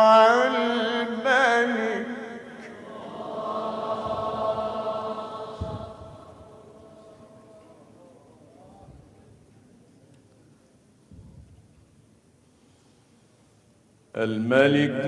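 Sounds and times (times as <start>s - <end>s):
man chanting melodically: 0.0s - 2.6s, 14.1s - 15.0s.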